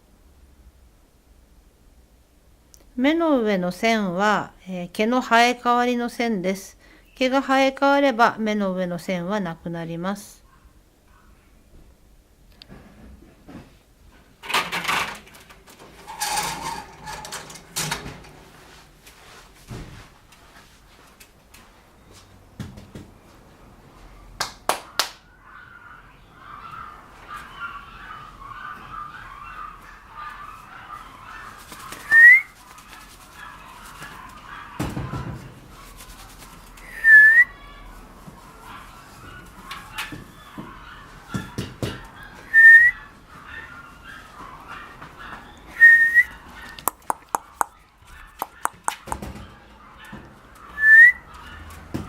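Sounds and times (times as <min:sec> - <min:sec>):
sharp clicks: 0:46.8 - 0:49.2.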